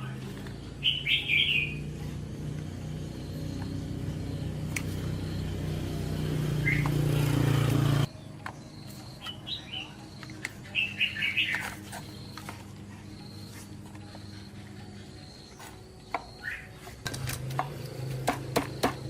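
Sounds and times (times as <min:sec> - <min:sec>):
birds chirping: 0:00.0 - 0:19.0
motor droning: 0:00.1 - 0:08.1.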